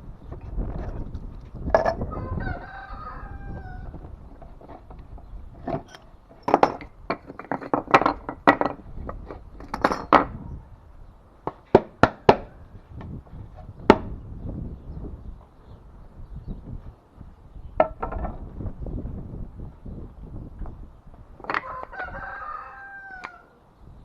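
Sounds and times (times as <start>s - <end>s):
tools and wood boards knocking: 1.6s - 2.0s, 4.3s - 10.4s, 11.4s - 12.5s, 13.9s - 14.1s, 17.8s - 18.4s, 21.4s - 21.7s.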